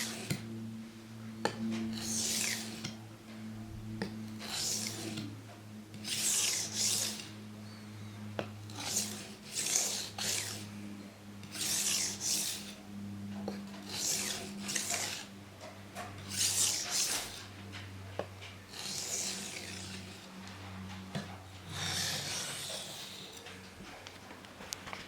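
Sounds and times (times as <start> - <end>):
knife scraping on whetstone: 0.0 - 0.4, 1.9 - 3.0, 4.4 - 5.3, 6.0 - 7.3, 8.7 - 10.7, 11.4 - 12.8, 13.5 - 15.3, 16.2 - 17.5, 18.7 - 20.4, 21.2 - 23.4.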